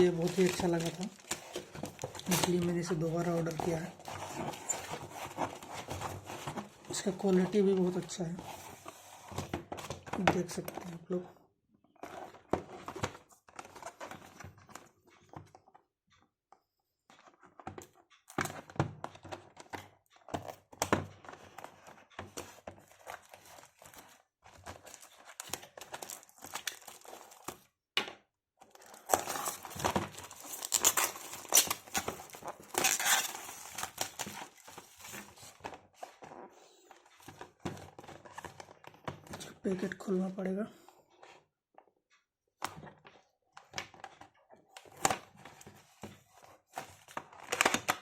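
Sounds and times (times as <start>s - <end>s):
packaging crinkling and tearing: 0.0s - 7.1s, 22.9s - 27.6s, 28.7s - 35.6s.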